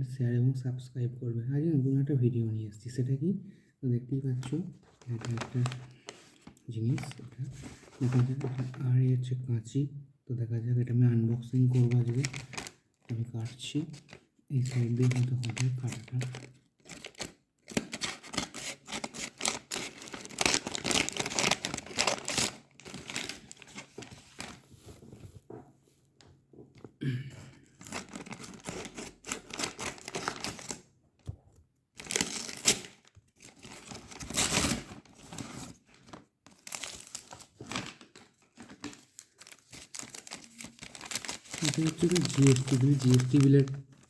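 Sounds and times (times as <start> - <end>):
wrapping crinkling and tearing: 4.9 - 8.8, 11.7 - 13.0, 14.0 - 24.7, 27.8 - 30.8, 32.0 - 44.0
scissors cutting parcel: 16.3 - 23.6, 27.8 - 30.8.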